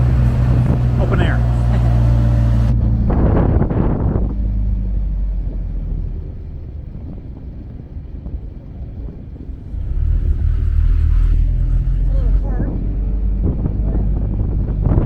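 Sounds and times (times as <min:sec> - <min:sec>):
taxi engine running: 0:00.0 - 0:15.0
wind buffeting microphone: 0:00.0 - 0:15.0.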